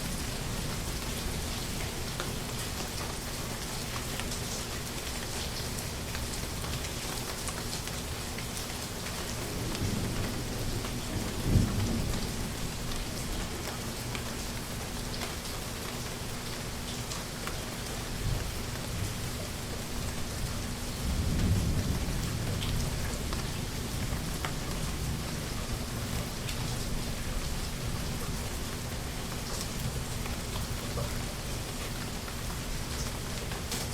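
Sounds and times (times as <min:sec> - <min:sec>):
steady rain falling: 0:00.0 - 0:33.9
distant thunder rumbling: 0:20.7 - 0:25.6.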